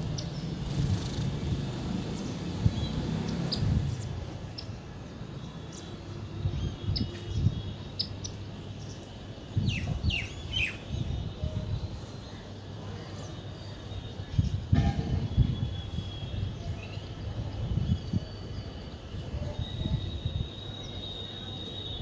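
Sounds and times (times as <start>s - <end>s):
small birds chirping: 0.0s - 4.8s, 5.4s - 11.1s.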